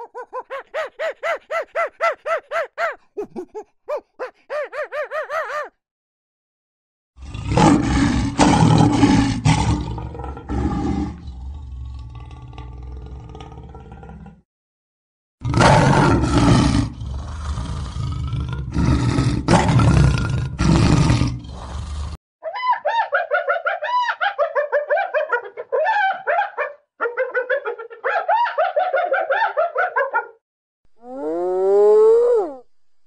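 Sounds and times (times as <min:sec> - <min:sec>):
hyena giggling calls: 0:00.0 - 0:05.7
lion roaring: 0:07.2 - 0:14.4, 0:15.4 - 0:22.2.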